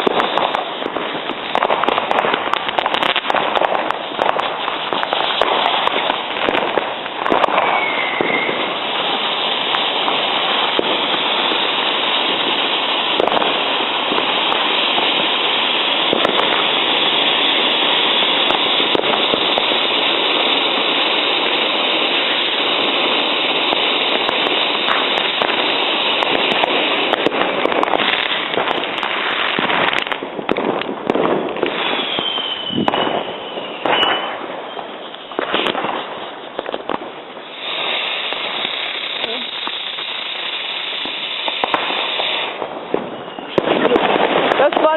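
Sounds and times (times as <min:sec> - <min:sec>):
falling firework whistles: 0:00.0 - 0:44.9
fireworks and firecrackers bangs: 0:00.0 - 0:44.9.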